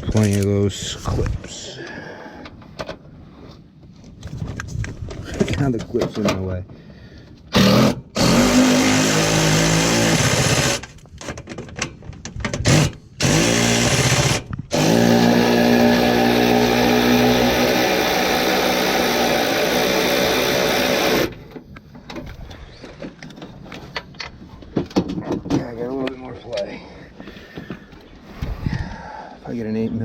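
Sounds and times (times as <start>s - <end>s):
cordless power tool motor spinning: 7.6s - 10.9s, 12.7s - 21.4s.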